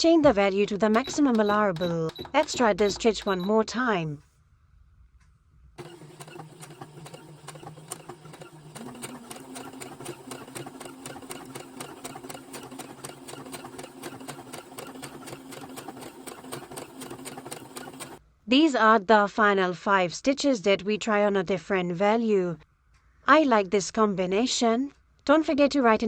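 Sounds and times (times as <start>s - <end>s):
sewing machine stitching: 0.0s - 3.6s, 5.8s - 18.2s.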